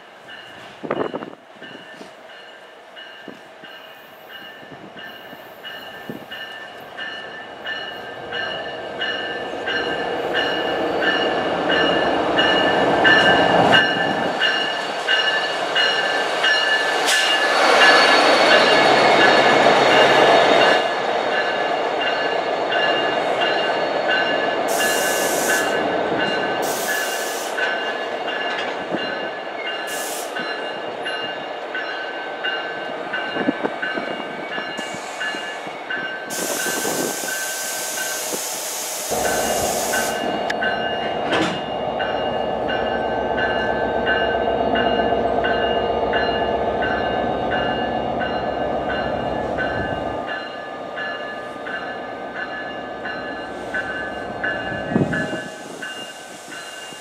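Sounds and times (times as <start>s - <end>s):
train rolling past: 0.0s - 57.0s
locomotive bell ringing: 0.2s - 38.2s, 39.1s - 57.0s
air hisses: 26.6s - 27.6s, 29.9s - 30.4s, 36.3s - 40.3s.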